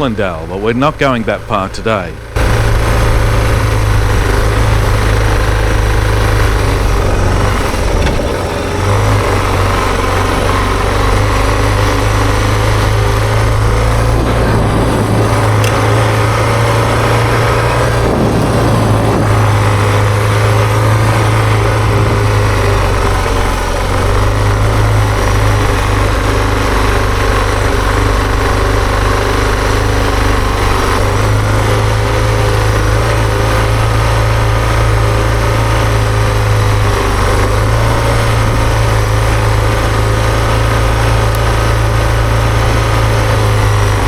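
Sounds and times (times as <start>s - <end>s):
motorcycle engine running: 0.0s - 44.0s
rushing wind noise: 11.7s - 24.9s.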